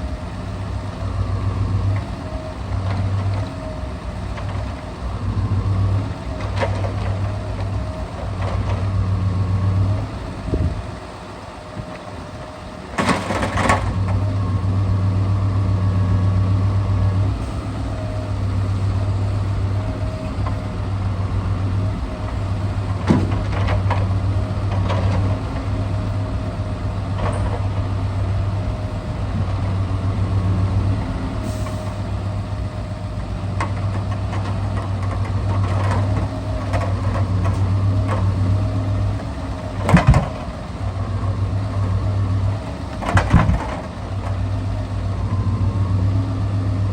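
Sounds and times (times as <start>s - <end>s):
diesel engine running: 0.0s - 46.9s
knocks of timber being loaded: 4.2s - 10.8s, 12.9s - 14.6s, 16.0s - 32.2s, 32.8s - 44.9s.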